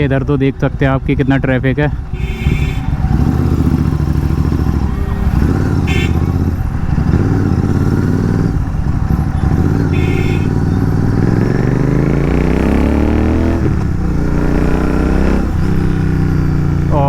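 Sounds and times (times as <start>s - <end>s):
motorcycle engine accelerating: 1.7s - 17.0s
short horn beep: 2.1s - 6.6s, 9.4s - 10.8s.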